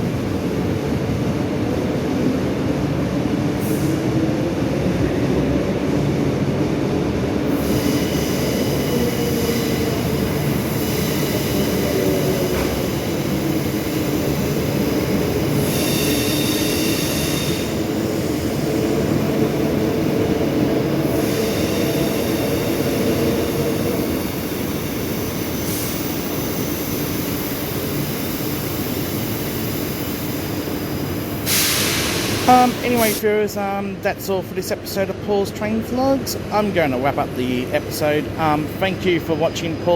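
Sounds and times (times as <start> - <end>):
electric train rumbling: 0.0 - 39.9
train wheels squealing: 15.6 - 17.8.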